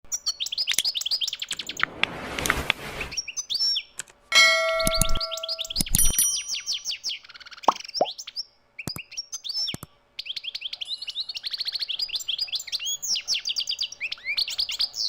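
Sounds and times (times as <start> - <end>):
bell-like ringing tone: 4.3 - 6.9
finch twittering: 4.4 - 6.9.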